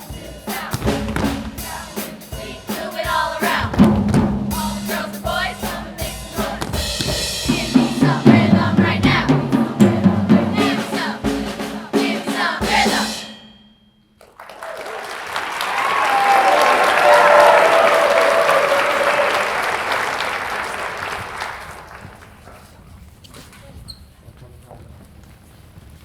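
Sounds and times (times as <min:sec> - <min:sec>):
choir singing: 0:00.0 - 0:13.4
drum kit: 0:00.0 - 0:13.4
applause: 0:14.2 - 0:22.8.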